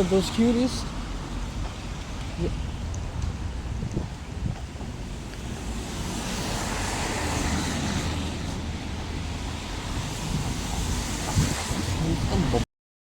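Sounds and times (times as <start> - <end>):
car rumble: 0.0 - 12.6
tyre hiss on wet road: 4.8 - 12.2.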